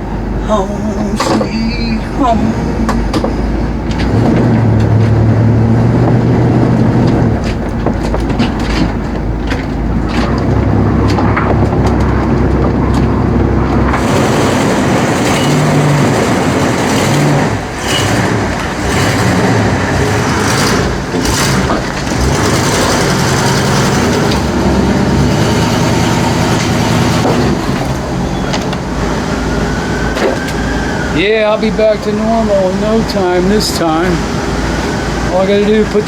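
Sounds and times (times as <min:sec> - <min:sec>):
vehicle rattles: 0:00.0 - 0:36.0
vehicle road rumble: 0:00.0 - 0:36.0.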